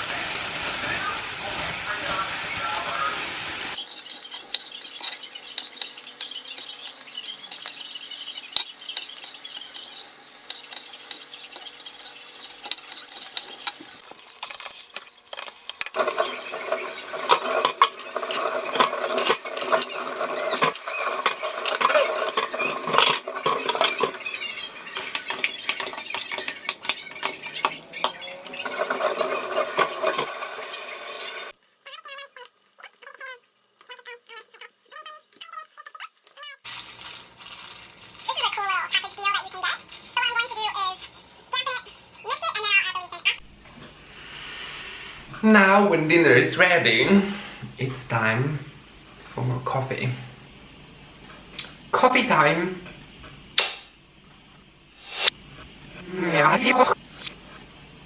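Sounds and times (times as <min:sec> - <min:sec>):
food sizzling in a pan: 0:00.0 - 0:43.4, 0:44.0 - 0:45.2, 0:54.9 - 0:55.4
utensils clinking on cookware: 0:03.8 - 0:31.5.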